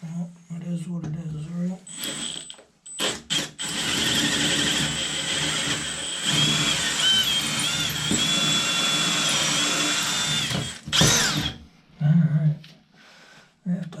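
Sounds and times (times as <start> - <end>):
power drill boring: 1.9 - 11.6.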